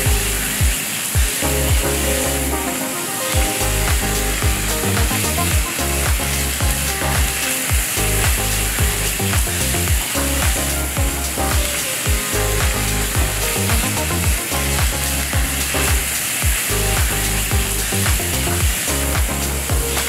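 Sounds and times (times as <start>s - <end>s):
background music with a beat: 0.0s - 20.0s
fried rice sizzling in a pan: 3.4s - 20.0s.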